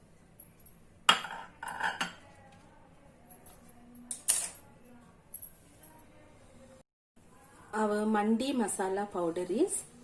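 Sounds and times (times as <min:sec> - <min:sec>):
metal utensils clinking: 0:03.5 - 0:04.7.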